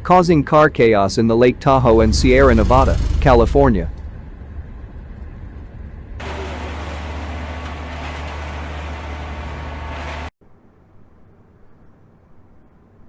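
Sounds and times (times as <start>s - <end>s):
vehicles rushing past: 1.8s - 10.3s.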